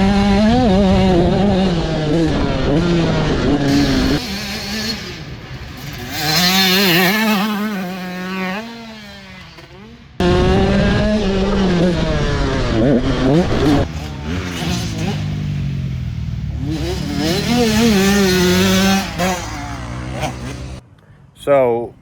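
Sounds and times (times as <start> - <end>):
dirt bike engine revving: 0.0 - 20.8.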